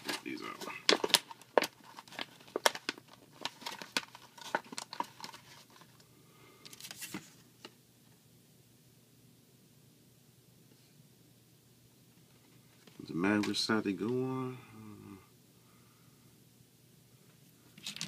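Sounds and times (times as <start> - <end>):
plastic crinkling: 0.0 - 6.0.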